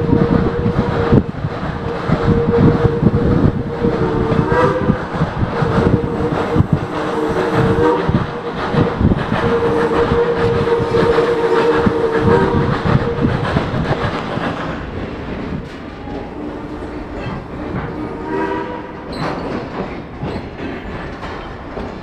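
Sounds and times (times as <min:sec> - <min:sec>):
locomotive whistle chord: 0:00.0 - 0:14.0
train rumble: 0:00.0 - 0:22.0
wheels clicking over rail joints: 0:00.0 - 0:22.0.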